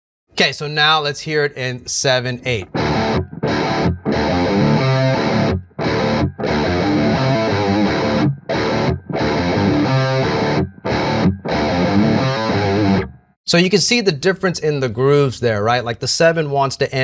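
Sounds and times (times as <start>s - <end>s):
distorted electric guitar riff: 2.6s - 13.3s.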